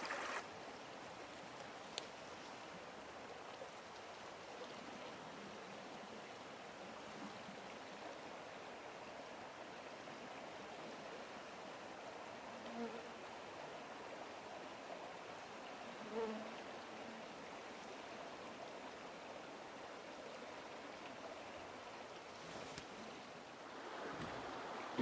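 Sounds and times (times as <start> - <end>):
flowing water: 0.0 - 25.0.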